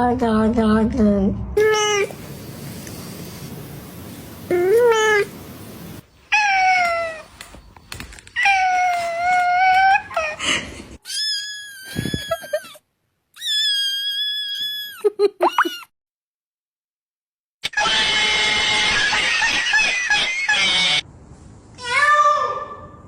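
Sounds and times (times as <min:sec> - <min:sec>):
cats meowing: 0:06.3 - 0:07.4.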